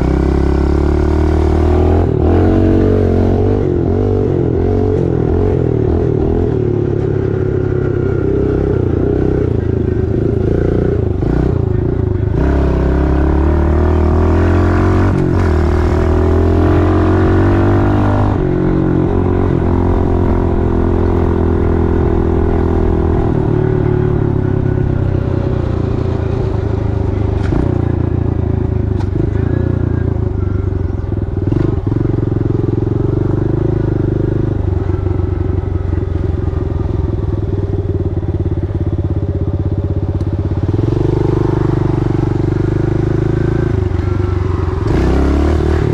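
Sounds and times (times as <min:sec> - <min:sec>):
small motorcycle engine revving: 0:40.6 - 0:45.9.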